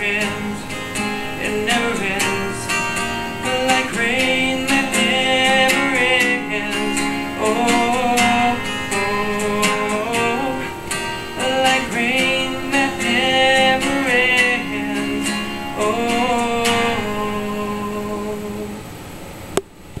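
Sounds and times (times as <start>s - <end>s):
acoustic guitar strumming: 0.0s - 19.1s.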